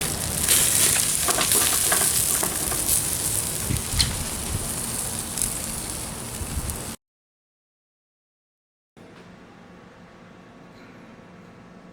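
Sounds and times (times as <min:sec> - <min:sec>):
chicken sizzling: 0:00.0 - 0:07.0
fire crackling and popping: 0:00.0 - 0:07.0.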